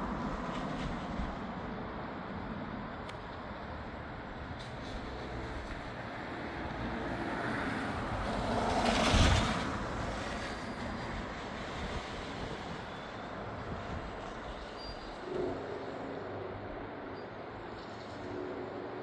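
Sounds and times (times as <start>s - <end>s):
vehicle passing by: 6.2s - 10.6s.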